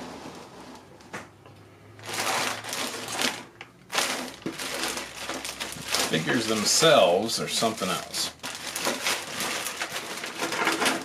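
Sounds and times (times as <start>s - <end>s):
hard plastic pieces rattling: 2.0s - 7.0s, 7.6s - 11.0s.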